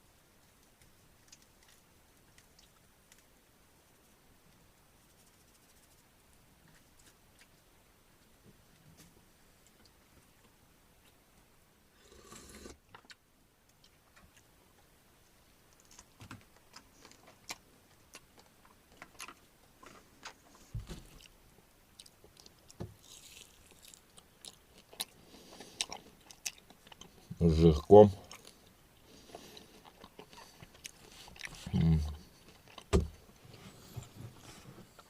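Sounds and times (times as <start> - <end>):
soft clicks and wet smacks: 0.4 - 3.4, 12.9 - 14.9, 24.0 - 27.3
person chewing fried meat: 16.7 - 27.6, 28.2 - 32.9.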